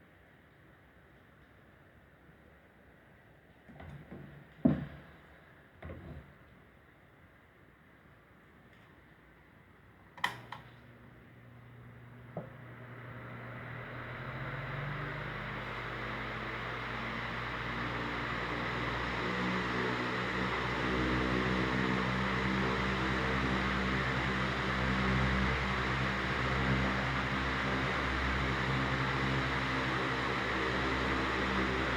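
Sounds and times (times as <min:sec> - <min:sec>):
fan switch clicks: 0:10.2 - 0:10.8
electric fan motor humming: 0:11.2 - 0:31.9
rush of air from fan: 0:12.6 - 0:31.9.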